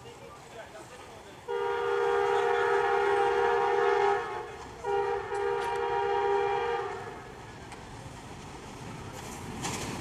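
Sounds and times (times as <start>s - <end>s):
locomotive horn blasts: 1.5s - 7.3s.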